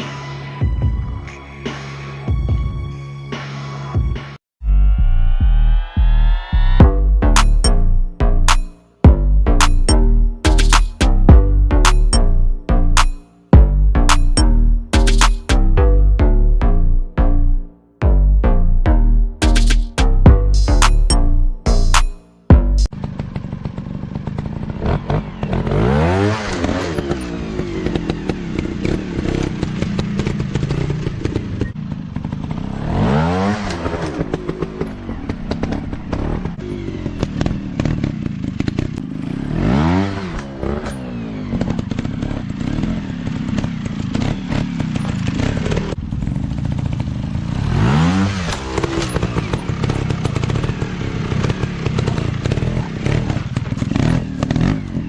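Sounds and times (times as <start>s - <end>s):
dirt bike engine revving: 19.4s - 55.0s.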